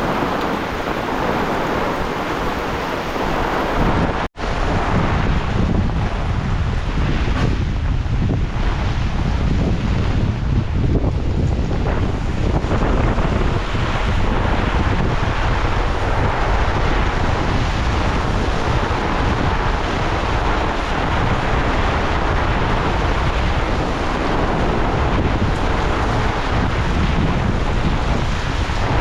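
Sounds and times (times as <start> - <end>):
heavy rain hiss: 0.0 - 5.1
wind buffeting microphone: 0.0 - 29.0.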